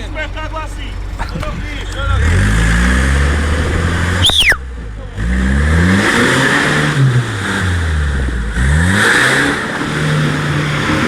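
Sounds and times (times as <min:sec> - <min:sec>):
off-road vehicle engine revving: 0:00.0 - 0:11.0
short high falling squeal: 0:04.2 - 0:04.7.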